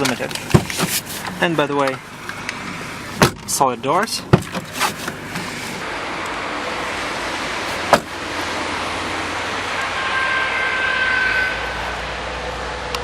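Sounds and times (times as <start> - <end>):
car door thud: 0.5 - 1.1, 3.2 - 3.5, 4.3 - 5.5, 7.9 - 8.2.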